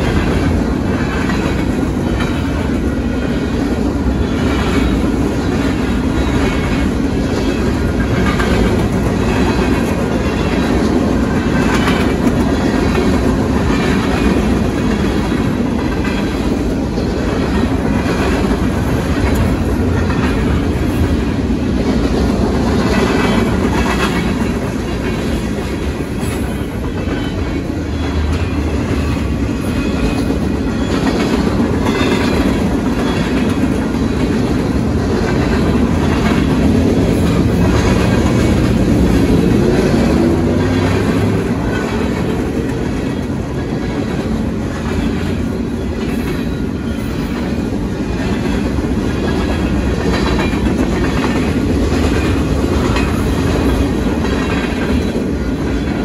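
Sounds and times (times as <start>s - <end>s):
wheel-on-rail noise: 0.0s - 56.0s
wheels clicking over rail joints: 0.0s - 56.0s.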